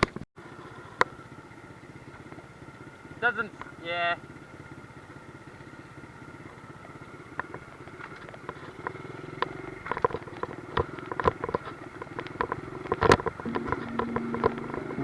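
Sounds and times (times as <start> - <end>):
dirt bike engine idling: 0.4 - 15.0
sharp clicks and knocks: 7.4 - 14.9.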